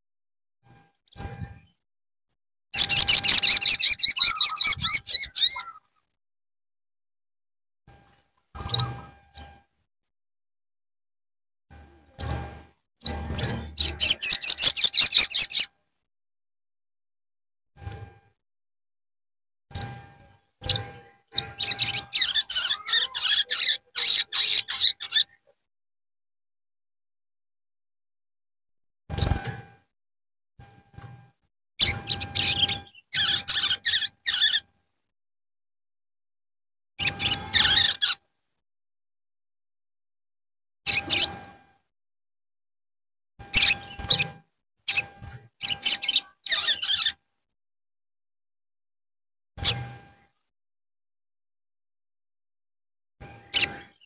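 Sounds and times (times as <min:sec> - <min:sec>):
bird chirping and twittering: 0:01.1 - 0:01.8, 0:02.8 - 0:05.8, 0:08.1 - 0:09.6, 0:12.2 - 0:15.7, 0:19.7 - 0:25.4, 0:31.8 - 0:34.7, 0:37.0 - 0:38.2, 0:40.9 - 0:41.4, 0:43.5 - 0:47.2, 0:53.5 - 0:54.0.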